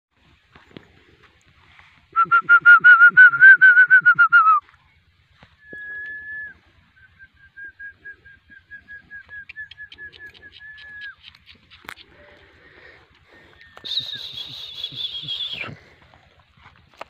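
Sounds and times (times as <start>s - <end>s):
bird whistling call: 5.6s - 11.6s, 13.5s - 15.8s.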